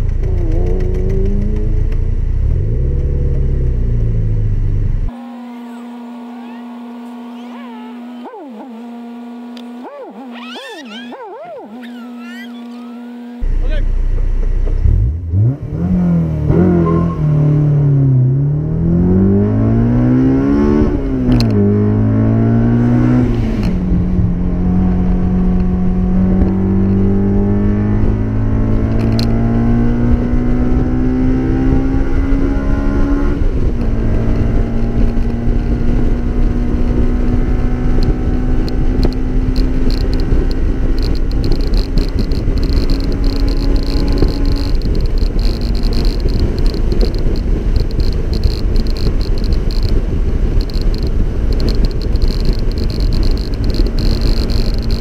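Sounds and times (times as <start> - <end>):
car engine accelerating: 0.0 - 55.0
road noise: 0.0 - 55.0
wind noise: 18.6 - 55.0.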